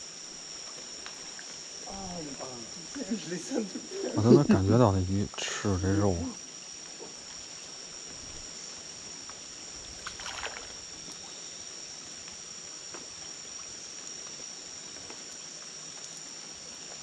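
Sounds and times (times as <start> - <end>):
insects chorus: 0.0 - 17.0
water splashing: 9.8 - 11.3.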